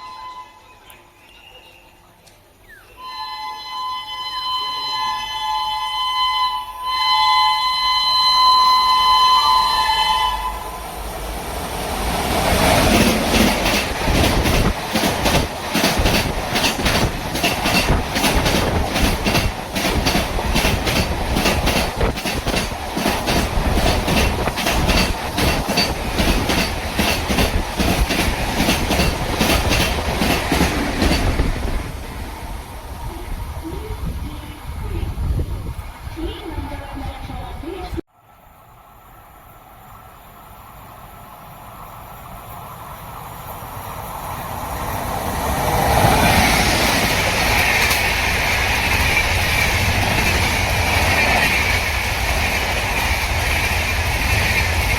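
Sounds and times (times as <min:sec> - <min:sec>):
train horn blast: 0:00.0 - 0:00.9, 0:03.0 - 0:11.0
train wheels clickety-clack: 0:12.1 - 0:32.0, 0:43.4 - 0:54.9.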